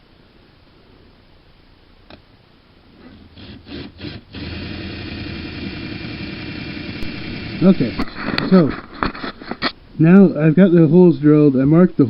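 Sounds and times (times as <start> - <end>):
electric drill running: 3.1 - 8.0.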